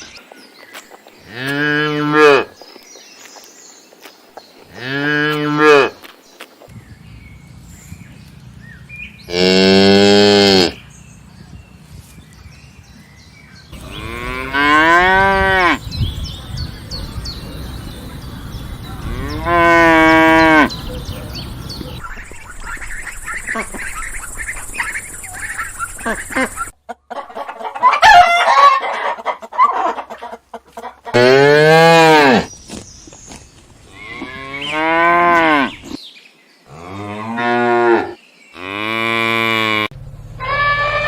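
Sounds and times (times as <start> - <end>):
background noise: 0.0 - 41.0
cow mooing: 9.3 - 10.8, 13.8 - 15.8, 19.0 - 20.8, 36.7 - 41.0.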